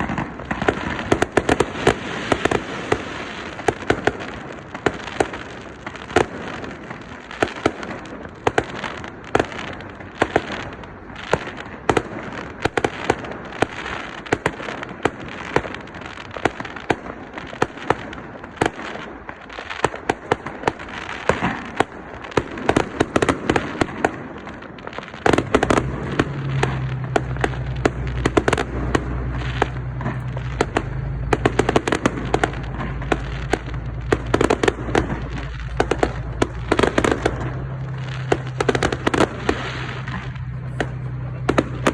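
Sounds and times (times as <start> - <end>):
fireworks bangs and crackling: 0.0 - 41.9
low rumble: 25.4 - 41.9.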